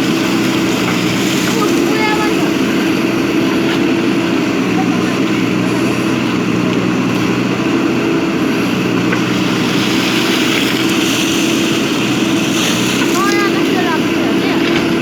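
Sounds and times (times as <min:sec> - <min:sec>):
diesel engine humming: 0:00.0 - 0:15.0.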